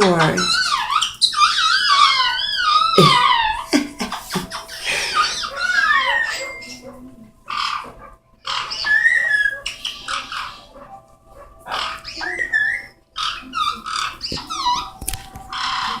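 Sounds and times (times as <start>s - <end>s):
parrot chirps: 0.0s - 10.8s, 11.6s - 16.0s
parrots squawking: 0.0s - 16.0s
parrot whistled glides: 0.4s - 7.9s, 8.5s - 10.8s.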